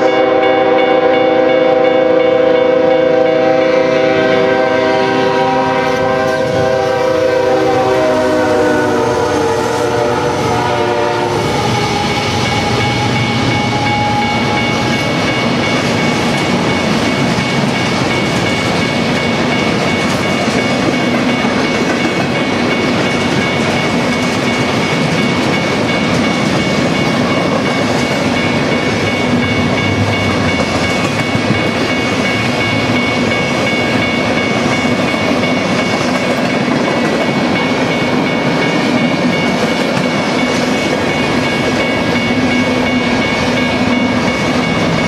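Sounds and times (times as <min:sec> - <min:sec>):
locomotive horn chord: 0:00.0 - 0:14.8
train cars rolling on rails: 0:00.0 - 0:45.0.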